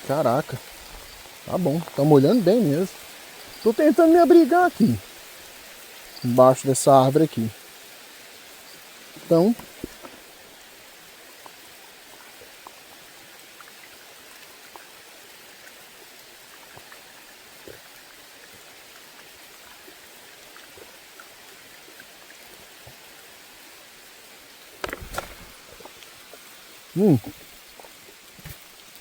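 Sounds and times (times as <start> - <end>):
heavy rain hissing: 0.0 - 11.0, 24.8 - 29.0
raindrops ticking close by: 0.0 - 14.9.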